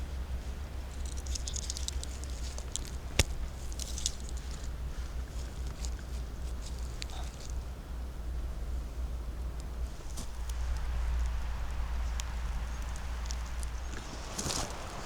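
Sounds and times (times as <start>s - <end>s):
footsteps on dry leaves: 0.0s - 7.6s, 9.9s - 15.0s
low steady rumble: 0.0s - 15.0s
twig snapping: 0.9s - 7.6s, 9.6s - 15.0s.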